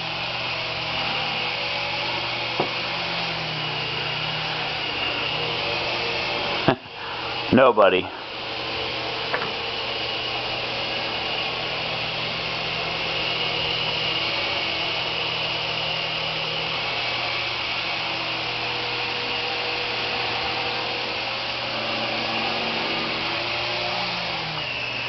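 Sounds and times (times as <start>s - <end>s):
toy helicopter whirring: 0.0s - 25.0s.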